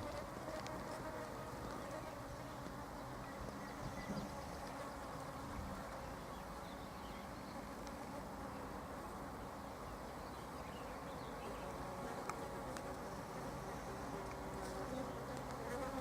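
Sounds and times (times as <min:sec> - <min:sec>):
faint ticks: 0:00.0 - 0:02.0, 0:12.2 - 0:13.0.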